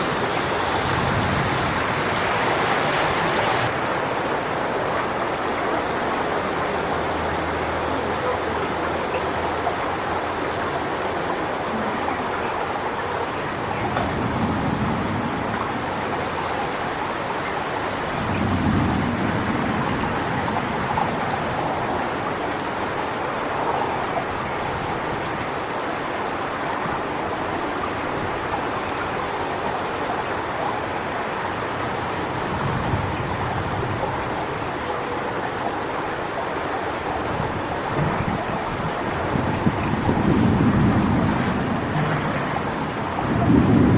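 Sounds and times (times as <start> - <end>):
wind buffeting microphone: 0.0 - 6.8, 13.2 - 25.6, 31.6 - 34.8, 36.8 - 43.9
wind rushing through palm fronds: 0.0 - 43.9.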